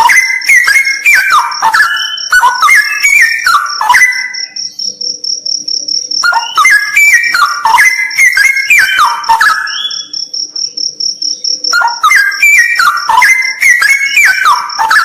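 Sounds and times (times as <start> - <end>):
bird singing falling whistles: 0.0 - 4.7, 6.2 - 10.2, 11.7 - 15.0
high insect trill: 0.0 - 15.0.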